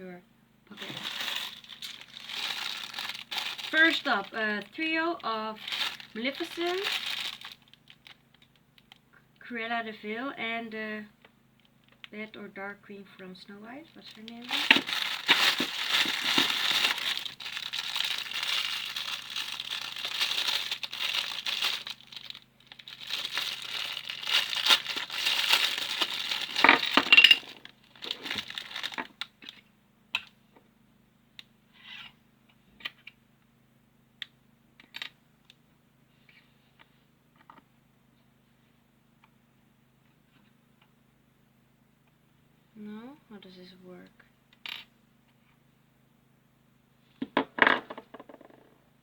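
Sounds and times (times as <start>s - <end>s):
plastic packaging crinkling and tearing: 0.7s - 8.6s, 13.9s - 29.6s.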